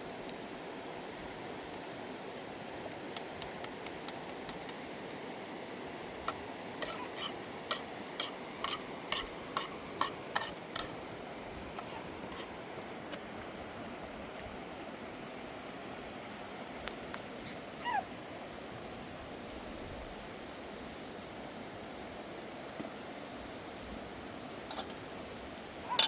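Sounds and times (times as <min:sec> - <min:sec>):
short scraping strokes: 0:06.3 - 0:11.0.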